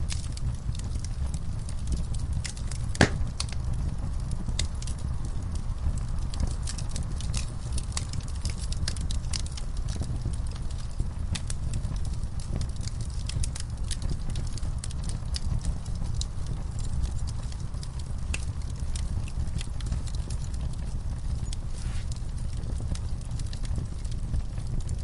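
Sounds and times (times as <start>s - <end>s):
fire pops and snaps: 0.0s - 25.0s
wood fire crackling: 0.0s - 25.0s.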